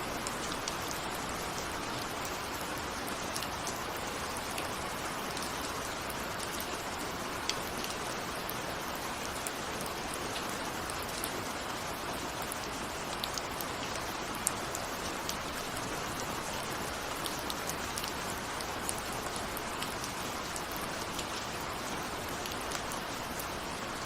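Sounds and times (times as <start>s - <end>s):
steady rain patter: 0.0s - 24.0s.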